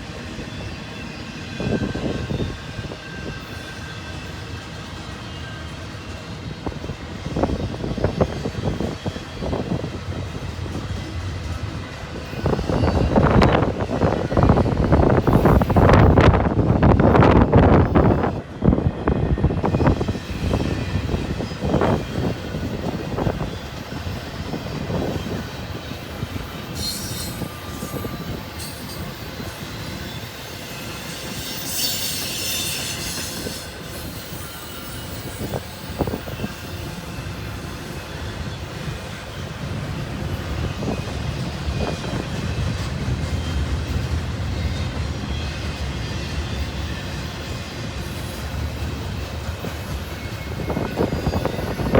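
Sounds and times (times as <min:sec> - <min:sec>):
train rolling rumble: 0:00.0 - 0:51.9
high-pitched wheel squeals: 0:19.6 - 0:39.5, 0:48.0 - 0:51.9.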